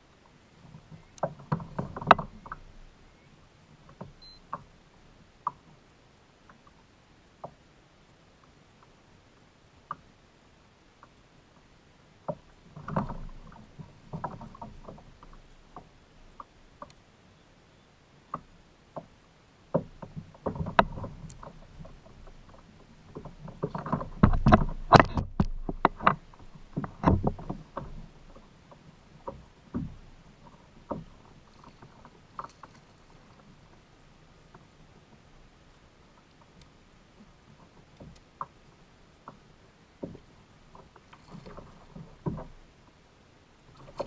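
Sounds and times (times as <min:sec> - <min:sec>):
knocks and clatter on kayak hull: 0:00.6 - 0:03.0, 0:03.8 - 0:04.7, 0:12.2 - 0:16.9, 0:19.7 - 0:33.8, 0:39.2 - 0:42.9, 0:43.7 - 0:44.0.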